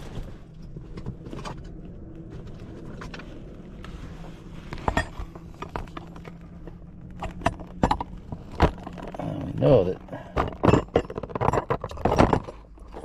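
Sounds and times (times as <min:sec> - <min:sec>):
steady low hum: 0:00.0 - 0:13.0
small metal parts clinking: 0:07.1 - 0:13.0.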